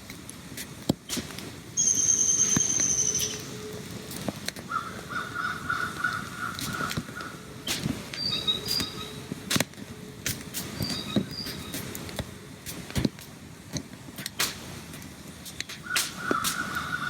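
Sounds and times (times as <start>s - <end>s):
bird short high chirps: 1.8s - 3.6s, 8.2s - 9.2s, 10.8s - 11.8s
bird fast pulsed trill: 1.8s - 3.7s, 8.2s - 9.2s.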